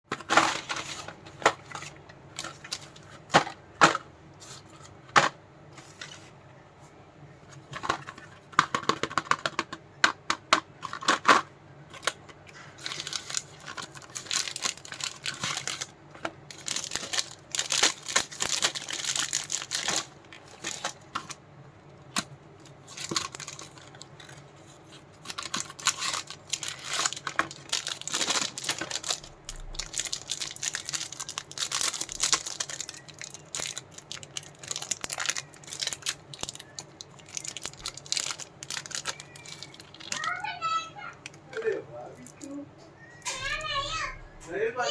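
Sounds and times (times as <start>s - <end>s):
wrappers crinkling and tearing: 11.9s - 21.4s, 22.1s - 40.5s.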